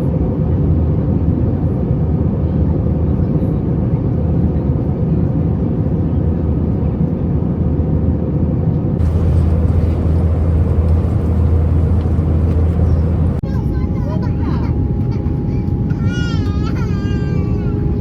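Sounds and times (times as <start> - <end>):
aircraft engine drone: 9.0 - 13.4
airflow: 9.0 - 13.4
deep low hum: 9.0 - 13.4.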